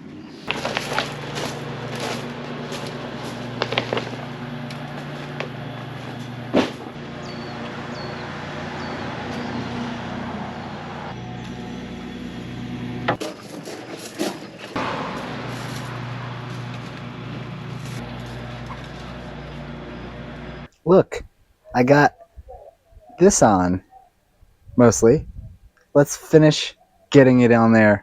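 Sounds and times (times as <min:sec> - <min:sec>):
low mechanical hum: 0:00.0 - 0:21.6.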